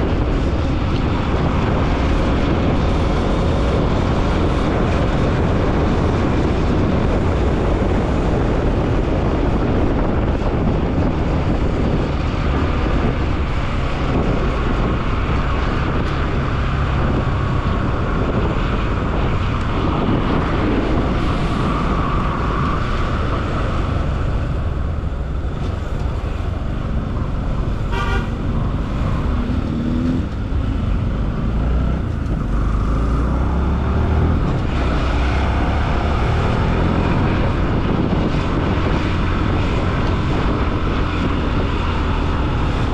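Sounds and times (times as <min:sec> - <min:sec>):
wind and road noise: 0:00.0 - 0:42.9
vehicle horn: 0:27.8 - 0:28.6.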